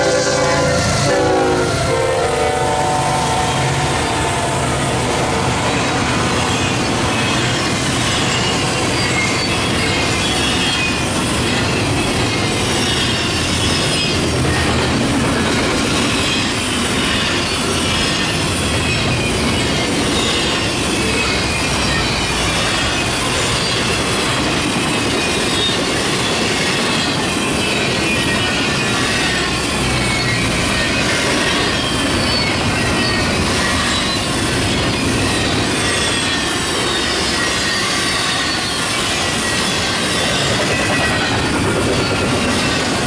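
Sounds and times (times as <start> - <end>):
locomotive air horn: 0.0 - 5.6
freight train rumbling by: 0.0 - 43.0
wheel squeal: 5.5 - 14.8, 16.0 - 43.0.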